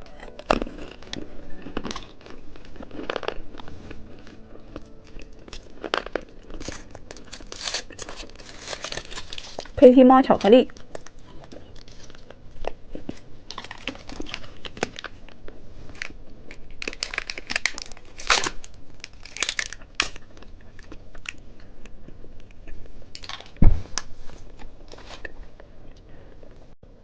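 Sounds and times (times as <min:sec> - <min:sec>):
plastic wrapper crinkling: 0:00.2 - 0:21.4, 0:23.1 - 0:25.3
loud thump: 0:23.6 - 0:23.9.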